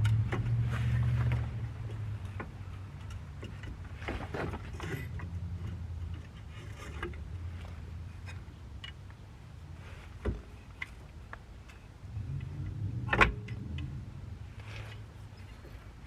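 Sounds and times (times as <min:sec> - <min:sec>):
low rumble: 0:12.1 - 0:15.2.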